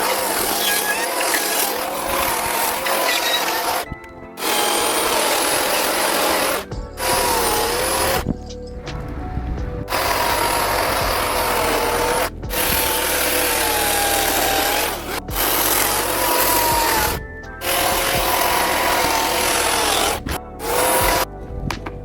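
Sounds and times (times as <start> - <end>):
chainsaw cutting wood: 0.0 - 8.4, 9.9 - 21.3.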